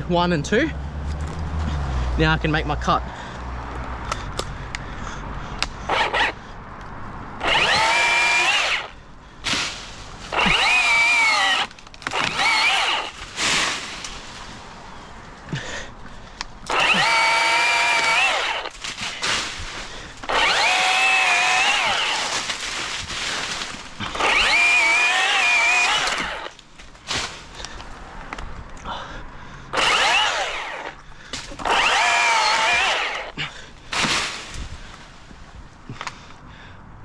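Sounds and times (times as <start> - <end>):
chainsaw cutting wood: 5.6 - 6.4, 7.4 - 14.6, 16.6 - 27.9, 29.7 - 35.0.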